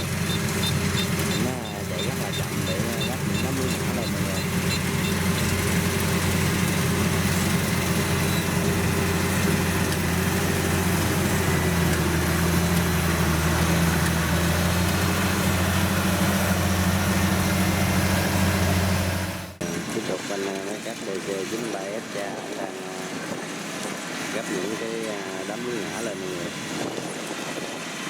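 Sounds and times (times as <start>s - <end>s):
combine harvester diesel engine running: 0.0s - 28.0s.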